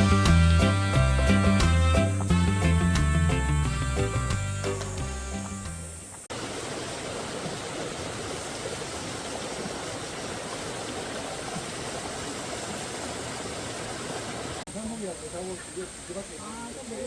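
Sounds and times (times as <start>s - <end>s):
background music: 0.0s - 6.1s
mountain stream rushing: 6.3s - 17.0s.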